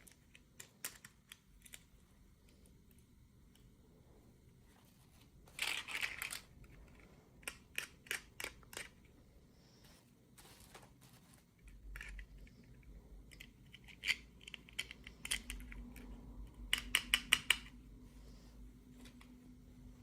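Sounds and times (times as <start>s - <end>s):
plastic toy parts clicking: 0.0s - 2.0s, 5.6s - 9.1s, 11.7s - 17.8s.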